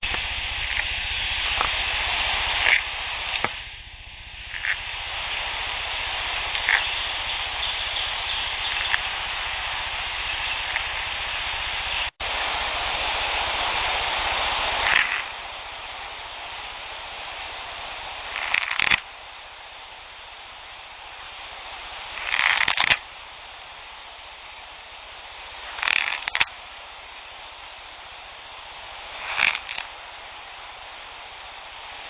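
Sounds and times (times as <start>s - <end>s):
scratchy rasping bursts: 0.0s - 3.6s, 4.4s - 19.1s, 21.7s - 23.1s, 25.6s - 26.5s, 29.0s - 30.0s
recorder hiss: 0.0s - 32.0s.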